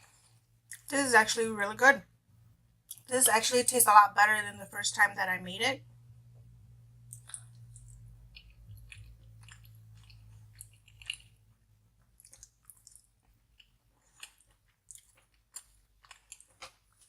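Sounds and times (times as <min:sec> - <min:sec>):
person chewing: 0:07.1 - 0:17.0.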